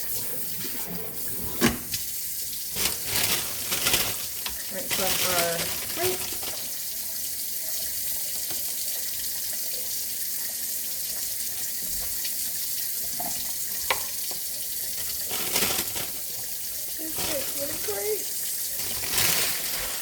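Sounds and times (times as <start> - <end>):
tap running into a sink: 7.7 - 15.3.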